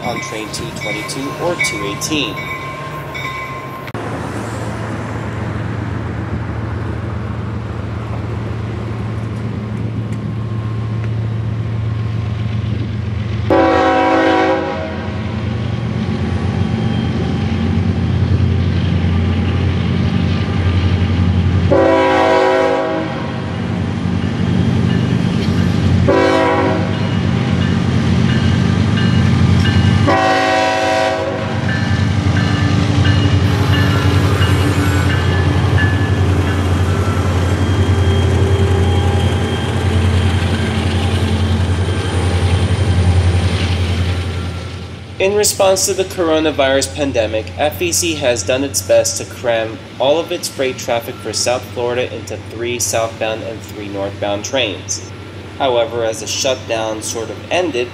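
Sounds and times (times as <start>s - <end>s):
locomotive engines humming: 0.0s - 57.9s
multi-chime air horn: 33.4s - 35.4s.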